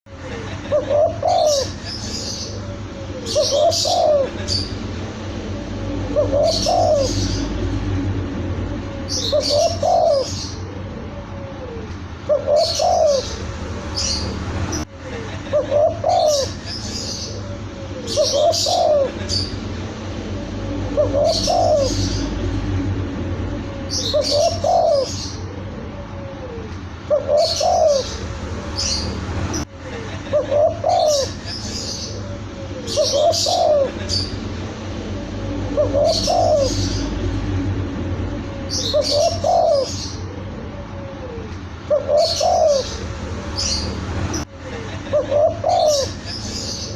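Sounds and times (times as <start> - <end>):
dove cooing: 0.4 - 14.8, 15.4 - 29.6, 30.2 - 44.4, 45.1 - 46.4
small birds chirping: 0.4 - 14.8, 15.6 - 29.6, 30.5 - 46.9
high chirping: 1.6 - 11.0, 16.0 - 25.6.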